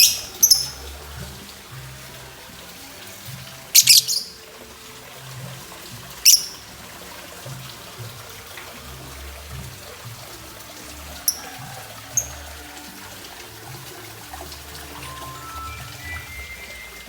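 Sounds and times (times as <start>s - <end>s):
lovebird chirping: 0.0s - 1.0s, 3.8s - 4.4s, 6.2s - 6.6s
background music: 0.0s - 17.0s.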